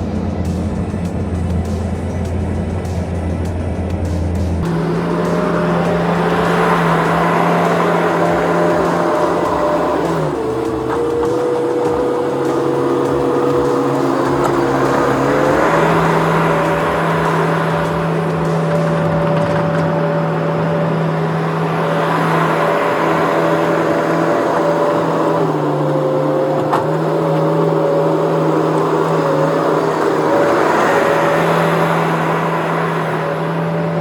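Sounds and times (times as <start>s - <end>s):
skid steer engine running: 0.0s - 34.0s.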